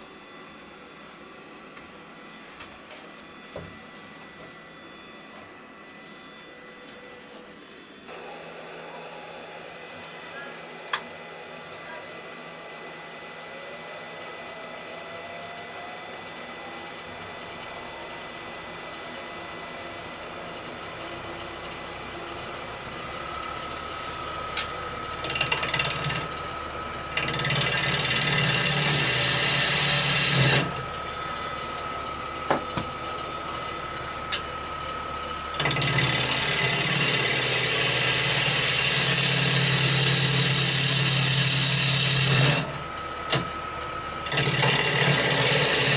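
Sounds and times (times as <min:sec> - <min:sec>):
wood lathe motor running: 0:10.1 - 0:45.9
gouge cutting spinning wood: 0:17.4 - 0:45.9.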